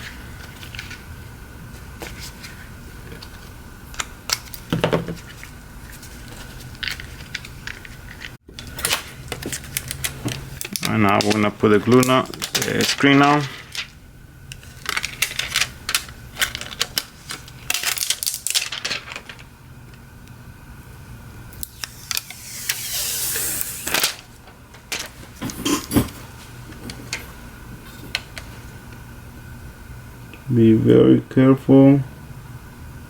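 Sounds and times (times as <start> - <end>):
brief rushing hiss: 21.8 - 24.1.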